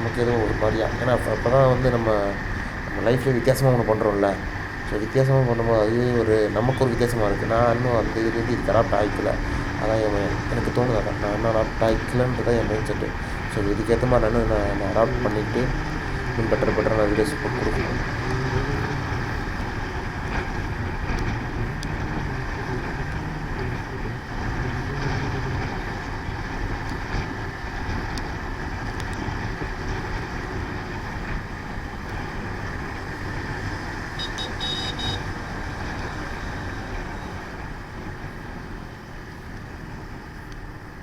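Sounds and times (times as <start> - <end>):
wind rushing on microphone: 0.0 - 34.6
motorcycle engine at speed: 0.0 - 41.0
high-pitched beeping: 34.2 - 35.3.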